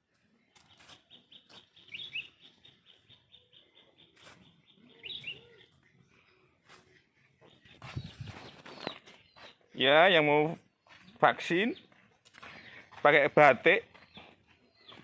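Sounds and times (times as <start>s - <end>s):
faint bird chirps: 0.2s - 9.8s, 13.9s - 15.0s.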